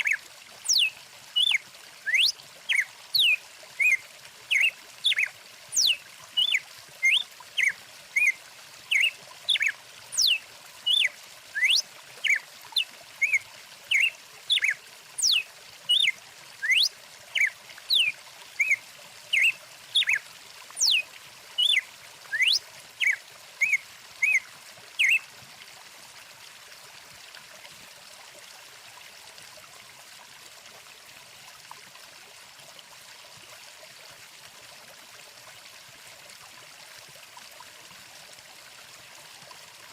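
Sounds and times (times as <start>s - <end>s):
bird chirping: 0.0s - 8.3s, 8.9s - 12.4s, 13.2s - 20.2s, 20.8s - 21.0s, 21.6s - 24.4s, 25.0s - 25.2s
stream flowing: 0.0s - 39.9s.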